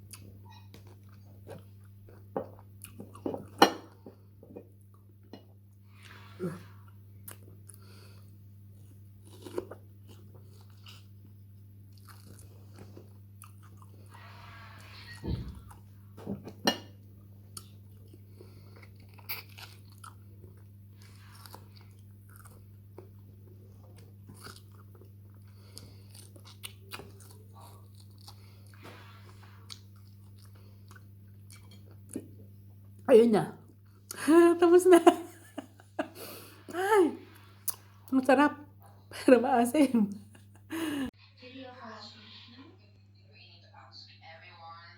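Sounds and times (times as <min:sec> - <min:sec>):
person biting and chewing: 0:09.2 - 0:11.2, 0:11.9 - 0:13.9, 0:17.5 - 0:23.2, 0:23.9 - 0:28.8.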